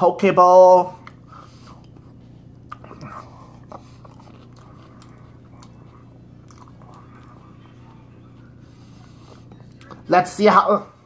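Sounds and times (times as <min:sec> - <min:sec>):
chewing and crunching salad: 0:01.0 - 0:10.1
wet mouth clicks: 0:02.6 - 0:05.8.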